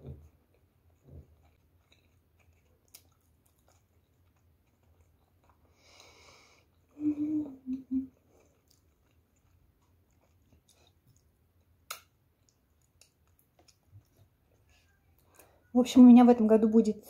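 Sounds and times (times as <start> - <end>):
quiet chewing: 0.0 - 15.8
woman humming with mouth full: 7.0 - 8.1.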